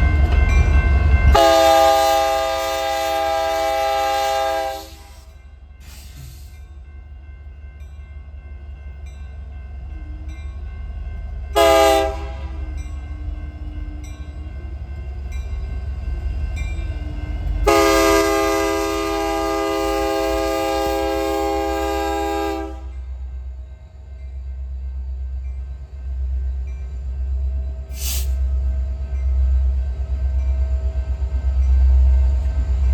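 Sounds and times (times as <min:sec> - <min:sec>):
passing train rumble: 0:00.0 - 0:32.9
locomotive air horn: 0:01.3 - 0:05.3, 0:11.6 - 0:12.6, 0:17.6 - 0:23.0.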